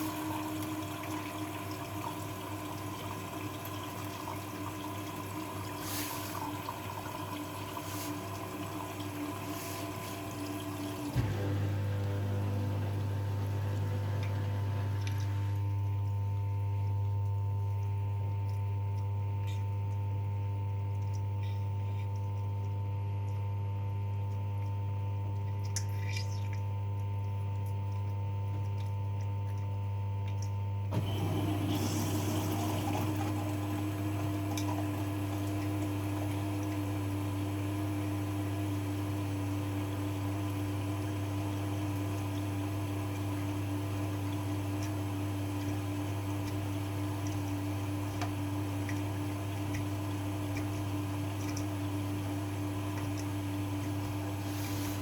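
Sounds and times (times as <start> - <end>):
water running in: 0.0 - 22.8, 24.0 - 55.0
washing machine humming: 0.0 - 55.0
hissy running noise: 53.2 - 55.0.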